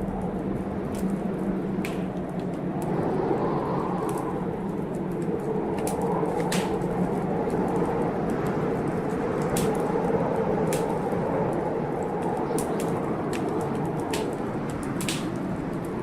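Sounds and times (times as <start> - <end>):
storm rushing: 0.0 - 16.0
wood fire crackling: 0.0 - 16.0
sharp pops of fire: 1.7 - 3.0, 5.8 - 7.2, 9.3 - 10.0, 10.6 - 11.2, 12.5 - 16.0.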